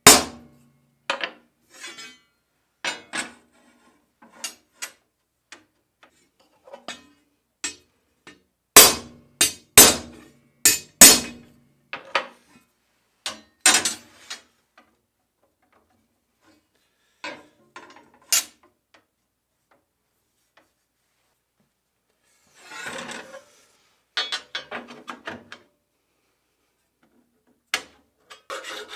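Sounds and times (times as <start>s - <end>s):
hammer striking steel bar: 0.1s - 0.4s, 8.8s - 11.4s.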